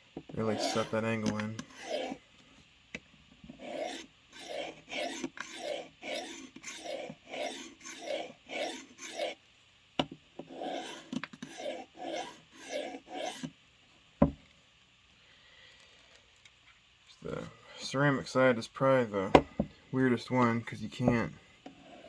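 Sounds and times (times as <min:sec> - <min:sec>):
knife rasping on sharpening plate: 0:00.5 - 0:02.2, 0:03.6 - 0:09.4, 0:10.5 - 0:13.5.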